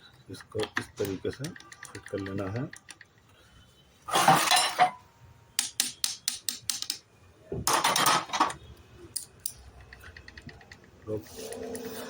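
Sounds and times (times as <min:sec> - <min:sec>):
metal parts clattering: 0:04.1 - 0:05.0, 0:07.7 - 0:08.6.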